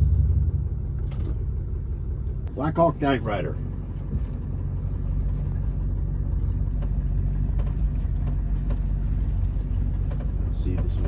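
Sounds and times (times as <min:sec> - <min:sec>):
pickup truck engine humming: 0:00.0 - 0:11.0
road noise: 0:00.0 - 0:11.0.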